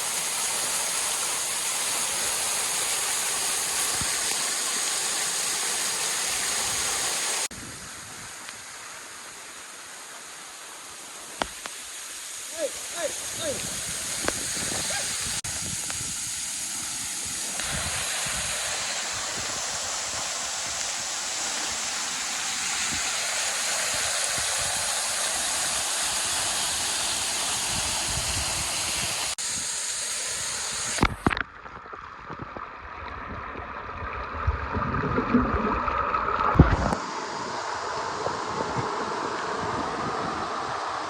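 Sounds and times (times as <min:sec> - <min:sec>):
waterfall rushing: 0:00.0 - 0:31.4
running water: 0:00.0 - 0:41.0
wind rumbling on microphone: 0:13.1 - 0:21.0, 0:23.8 - 0:29.7, 0:32.2 - 0:41.0.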